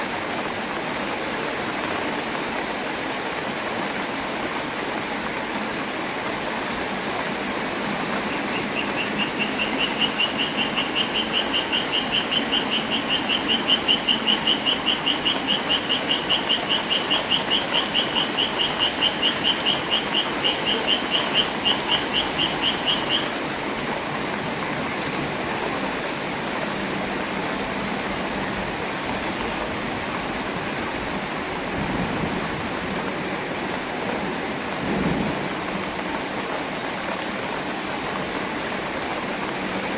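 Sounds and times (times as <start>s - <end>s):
rain falling: 0.0s - 39.9s
high repeated call: 8.2s - 23.4s.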